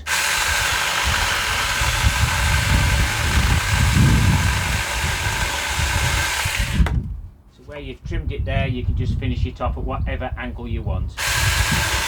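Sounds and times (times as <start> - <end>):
electric chainsaw whining: 0.0 - 7.0, 11.2 - 12.0.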